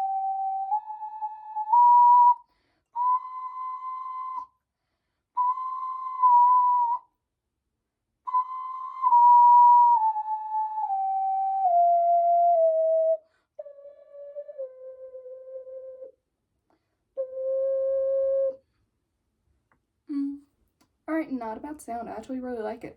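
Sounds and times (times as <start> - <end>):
ocarina notes: 0.0 - 2.4, 5.4 - 7.1, 8.3 - 16.2, 17.2 - 18.6.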